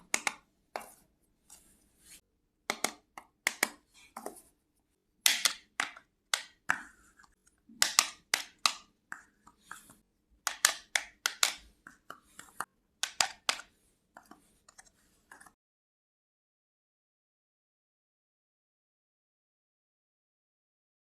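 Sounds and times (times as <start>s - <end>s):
toy pieces clicking and tapping: 5.3s - 14.3s.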